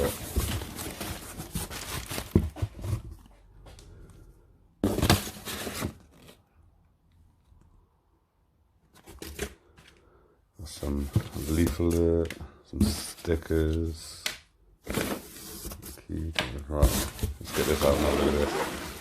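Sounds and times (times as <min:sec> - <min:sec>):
cardboard box rustling and scraping: 0:00.0 - 0:03.3, 0:04.8 - 0:06.4, 0:16.8 - 0:19.0.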